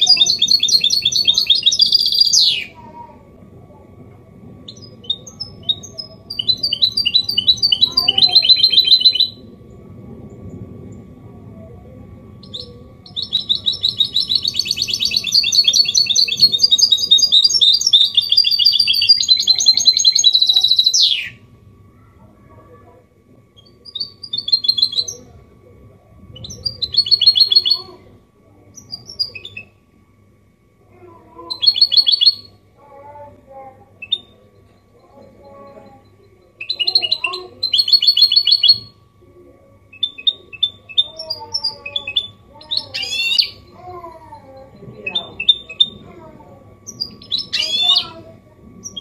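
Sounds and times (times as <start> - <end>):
finch singing: 0.0 - 2.8, 4.6 - 9.5, 12.4 - 21.4, 23.6 - 25.4, 26.4 - 28.0, 28.8 - 29.8, 31.4 - 32.6, 33.9 - 39.0, 39.9 - 49.0.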